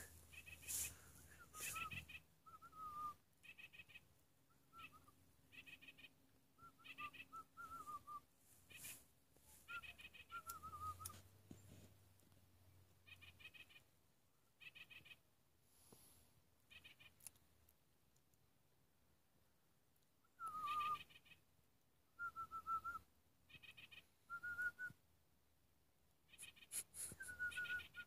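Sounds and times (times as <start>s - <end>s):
bird calling: 0.0s - 11.2s, 20.3s - 21.4s, 22.3s - 24.9s, 26.3s - 28.0s.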